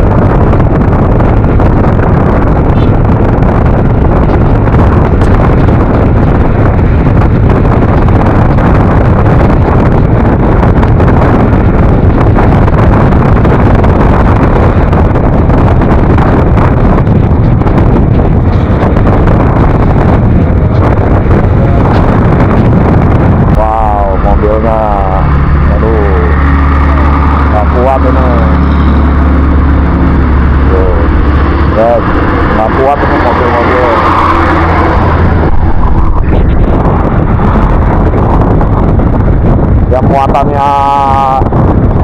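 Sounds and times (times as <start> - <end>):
scooter engine and road noise: 0.0 - 42.0
wind rush on microphone: 0.0 - 42.0.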